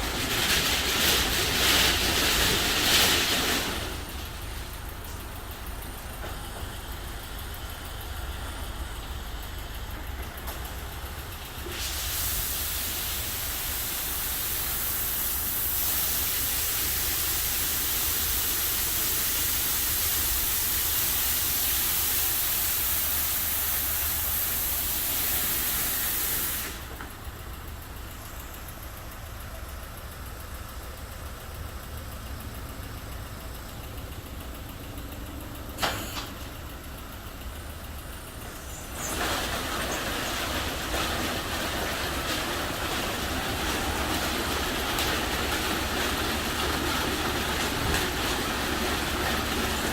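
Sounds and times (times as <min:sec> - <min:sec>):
water spray hissing: 0:11.7 - 0:26.9.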